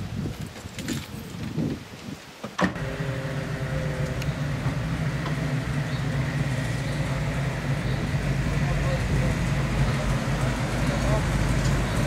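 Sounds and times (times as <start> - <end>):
car engine at low revs: 2.7 - 12.0.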